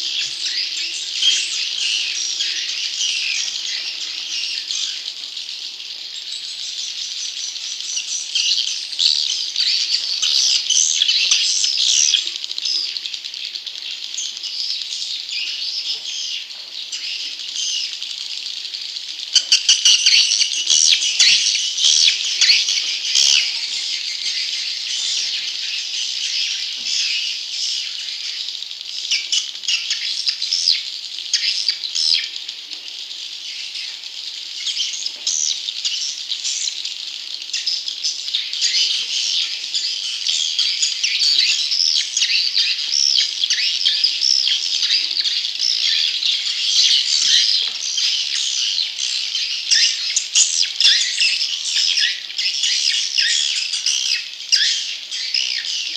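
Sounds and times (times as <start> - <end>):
young swiftlets chirping: 0.0 - 55.9.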